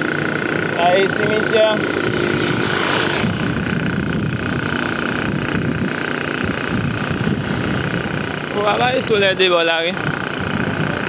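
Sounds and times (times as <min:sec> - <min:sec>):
constant high whine: 0:00.0 - 0:11.0
vehicle engine and road noise: 0:00.0 - 0:11.0.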